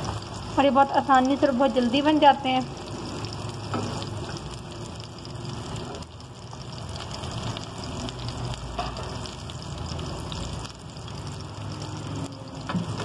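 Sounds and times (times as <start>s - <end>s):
kebabs sizzling in a pan: 0.0s - 13.0s.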